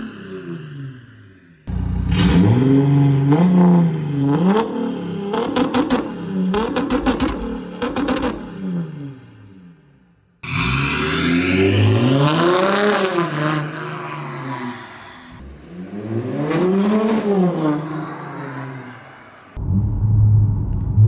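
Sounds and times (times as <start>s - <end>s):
loud diesel exhaust: 1.7s - 3.9s.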